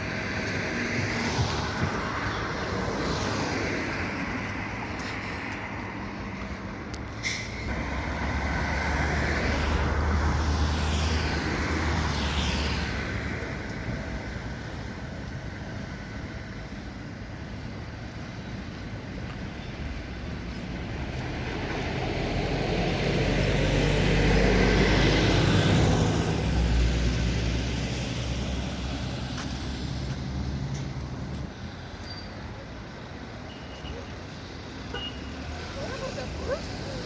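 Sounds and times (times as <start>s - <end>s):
street traffic noise: 0.0s - 37.0s.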